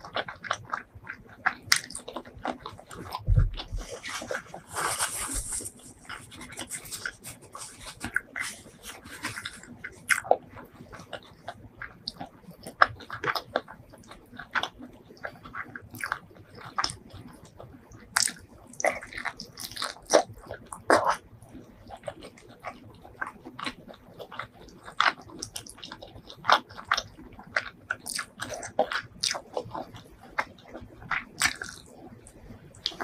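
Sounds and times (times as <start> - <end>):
wet chewing and lip smacks: 0.0 - 33.0.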